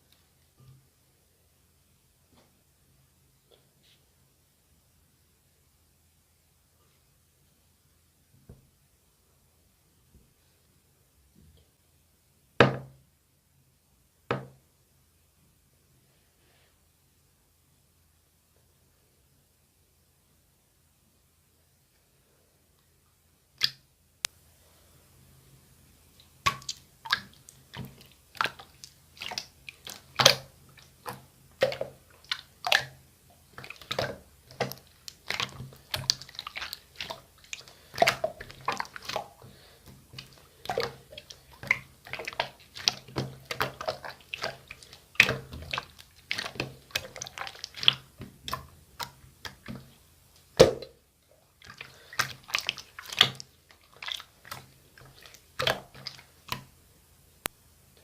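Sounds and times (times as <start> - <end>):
slime squished by hand: 26.4 - 49.9, 51.6 - 56.7.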